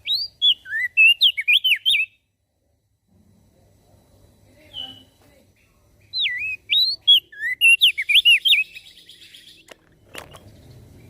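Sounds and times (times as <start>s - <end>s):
bird buzzy trill: 0.0s - 2.3s, 6.0s - 11.0s
bird singing whistled notes: 0.0s - 2.3s, 4.6s - 11.0s.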